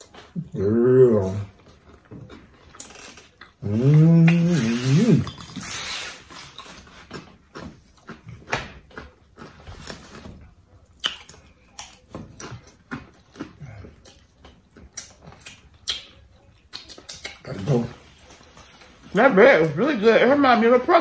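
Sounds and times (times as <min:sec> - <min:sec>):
wet mouth sounds: 0:01.2 - 0:09.9, 0:10.9 - 0:18.2.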